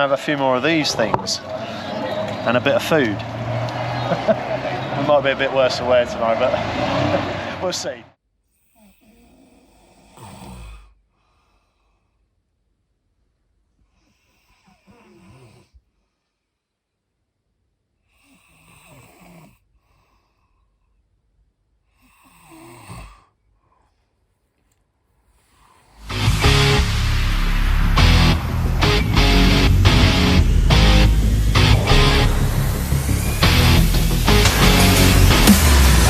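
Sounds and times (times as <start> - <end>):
person snoring: 8.7 - 10.9.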